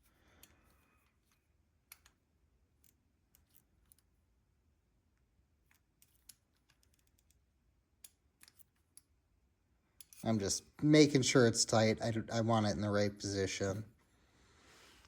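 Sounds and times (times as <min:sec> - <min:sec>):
small tool clicking on metal: 0:00.3 - 0:02.2, 0:05.6 - 0:07.4, 0:08.0 - 0:09.1, 0:10.0 - 0:10.2.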